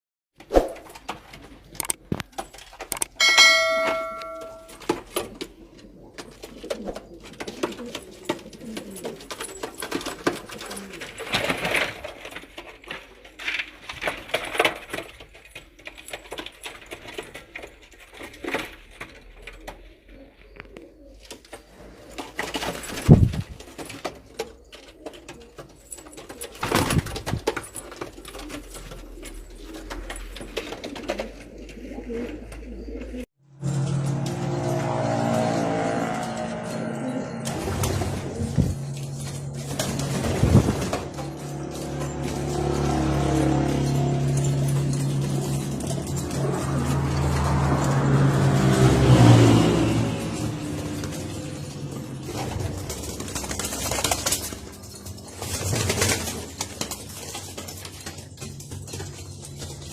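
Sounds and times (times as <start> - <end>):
pigeons cooing: 1.0 - 15.0, 15.8 - 33.3, 33.9 - 59.9
scattered clicks: 1.8 - 3.4
loud metallic ring: 3.2 - 4.8
rushes of noise: 33.5 - 54.7.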